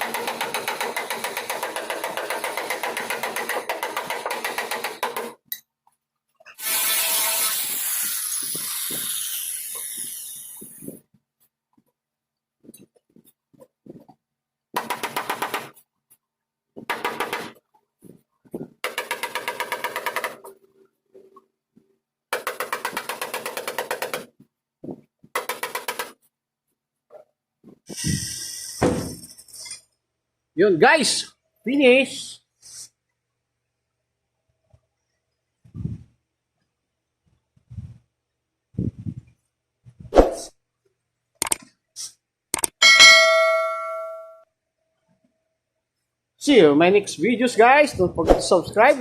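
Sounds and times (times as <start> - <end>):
power tool rattling: 0.0 - 5.4.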